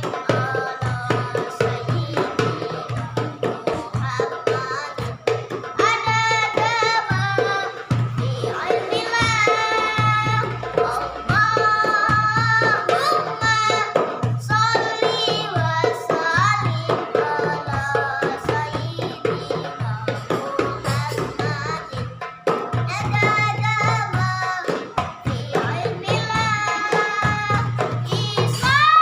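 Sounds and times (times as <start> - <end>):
boy singing: 0.0 - 29.0
frame drums rhythm: 0.0 - 29.0.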